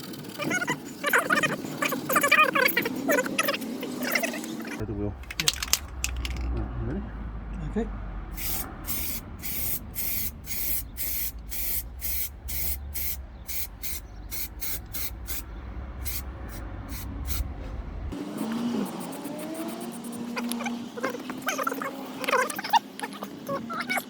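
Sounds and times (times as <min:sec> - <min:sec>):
low hum with sliding tone: 0:03.9 - 0:18.2
hissing spray squirts: 0:08.4 - 0:15.4, 0:16.0 - 0:17.5.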